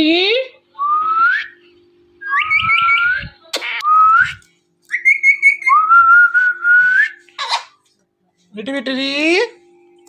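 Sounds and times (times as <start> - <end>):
parrot whistling: 2.2 - 7.8
parrot squawk: 7.4 - 7.8.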